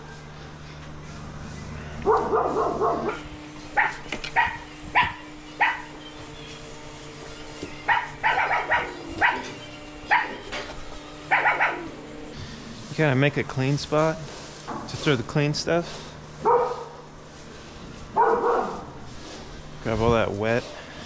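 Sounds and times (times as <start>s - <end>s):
dog barking: 2.0s - 3.2s, 3.8s - 6.0s, 7.9s - 10.5s, 11.3s - 12.0s, 16.4s - 17.0s, 18.2s - 18.9s.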